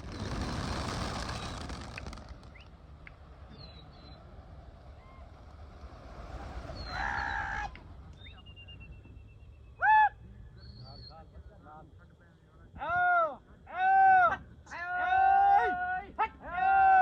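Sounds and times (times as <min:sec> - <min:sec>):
open-air background noise: 0:00.0 - 0:17.0
faint bird chirps: 0:02.4 - 0:05.4, 0:06.6 - 0:11.5.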